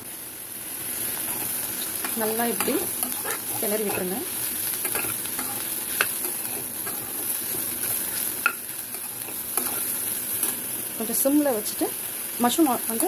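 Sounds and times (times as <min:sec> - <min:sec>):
mushrooms and onions sizzling: 0:00.0 - 0:13.0
spoon stirring and scraping pan: 0:01.0 - 0:10.7.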